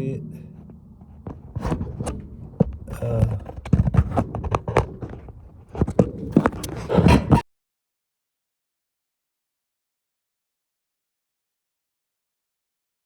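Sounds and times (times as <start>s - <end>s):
tools knocking and scraping: 0.5s - 7.4s
person mumbling: 2.9s - 3.5s.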